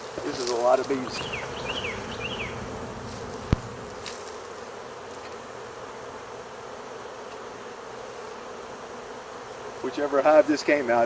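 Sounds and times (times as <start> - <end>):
honey bee swarm buzzing: 0.0 - 11.0.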